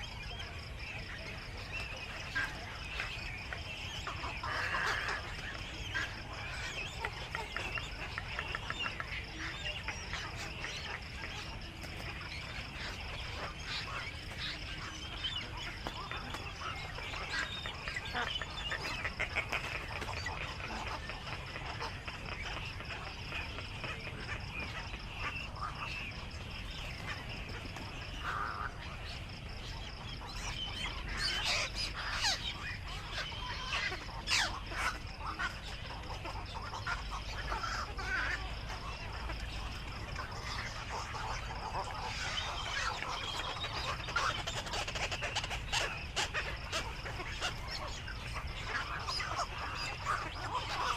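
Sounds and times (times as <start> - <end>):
herons harsh quacking calls: 4.0 - 11.6, 16.0 - 26.1.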